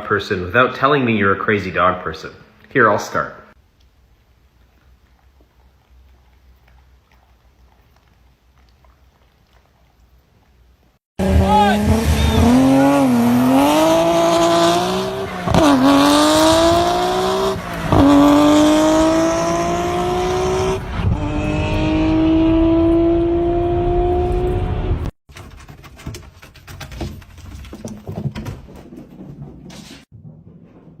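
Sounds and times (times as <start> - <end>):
racing car engine accelerating: 11.2 - 25.1.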